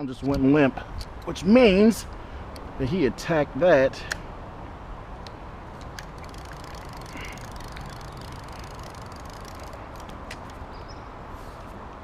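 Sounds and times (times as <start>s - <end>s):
rushing background noise: 0.3s - 12.0s
fishing reel ticking: 5.8s - 10.2s.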